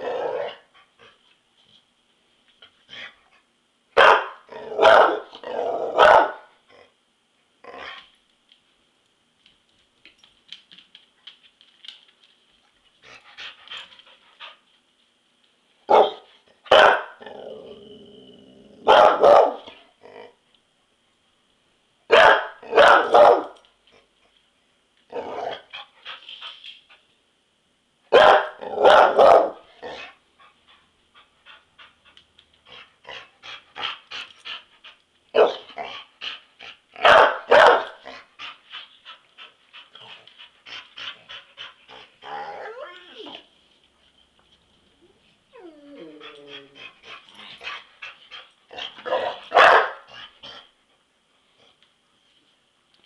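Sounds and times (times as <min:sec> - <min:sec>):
dog barking: 0:04.0 - 0:05.3, 0:06.0 - 0:06.5, 0:15.9 - 0:17.2, 0:18.8 - 0:19.7, 0:22.1 - 0:23.6, 0:28.1 - 0:29.6, 0:35.4 - 0:35.6, 0:37.0 - 0:38.0, 0:49.1 - 0:50.1
dog growling: 0:17.2 - 0:18.9, 0:45.6 - 0:49.4.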